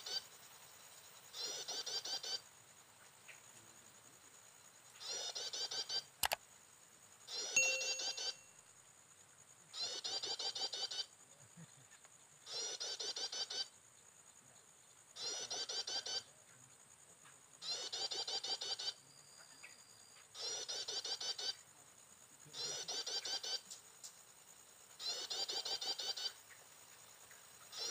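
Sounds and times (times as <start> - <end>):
sharp click: 6.2 - 6.4
bird chirping bursts: 7.3 - 8.6, 25.0 - 26.4, 27.6 - 27.9.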